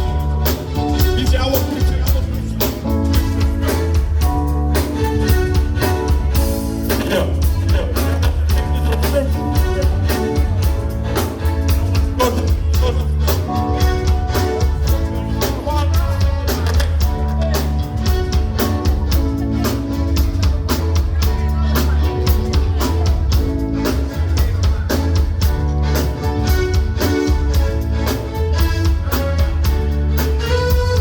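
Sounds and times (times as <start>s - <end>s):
bass guitar: 0.0s - 31.0s
blues band playing: 0.0s - 31.0s
drum kit: 0.0s - 31.0s.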